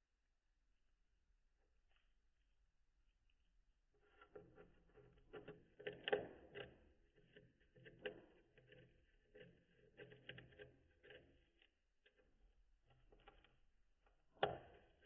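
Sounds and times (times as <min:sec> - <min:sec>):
bird gnawing on wood: 0:04.0 - 0:12.3, 0:12.9 - 0:13.6.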